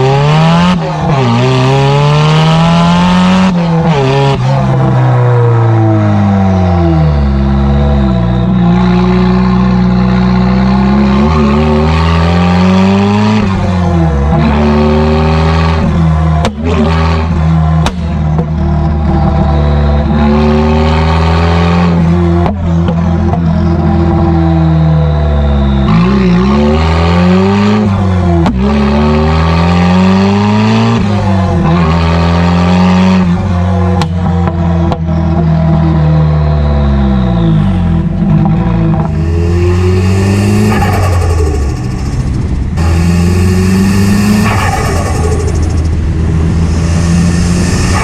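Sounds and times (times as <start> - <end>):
car engine revving through gears: 0.0 - 48.0
exhaust cracks: 38.4 - 48.0.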